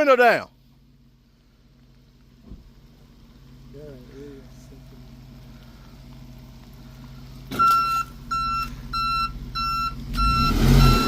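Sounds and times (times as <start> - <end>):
low engine hum: 0.5 - 11.0
reversing alarm beeping: 7.6 - 11.0.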